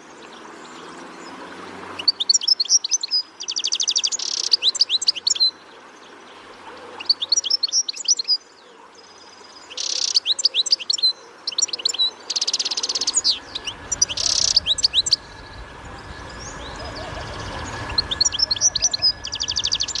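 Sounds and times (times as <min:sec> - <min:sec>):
songbird chirping and trilling: 0:00.0 - 0:20.0
low rumble: 0:12.8 - 0:20.0.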